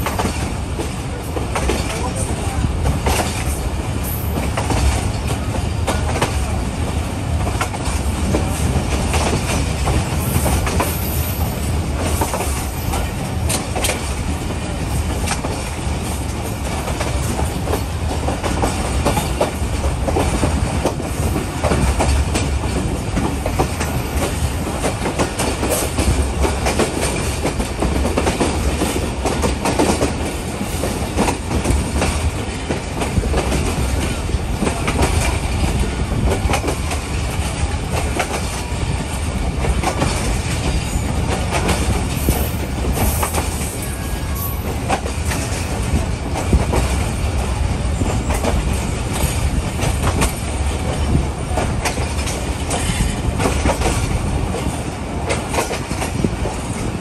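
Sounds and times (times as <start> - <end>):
train rumble from aboard: 0.0 - 57.0.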